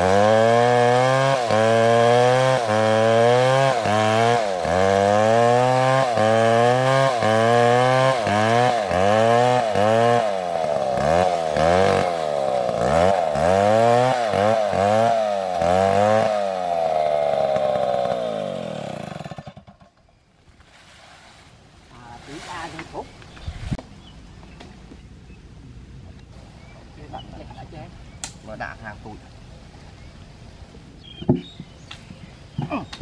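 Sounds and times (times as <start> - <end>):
chainsaw cutting wood: 0.0 - 20.1.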